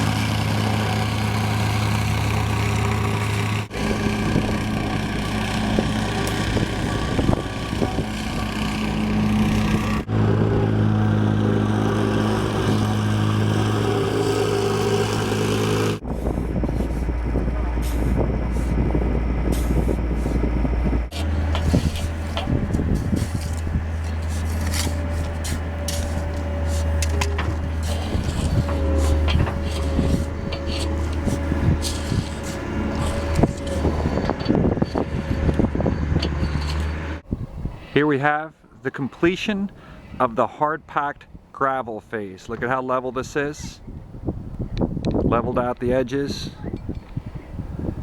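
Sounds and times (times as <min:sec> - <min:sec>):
earth-moving equipment engines: 0:00.0 - 0:37.3
metal clanks and ticks: 0:21.1 - 0:37.2.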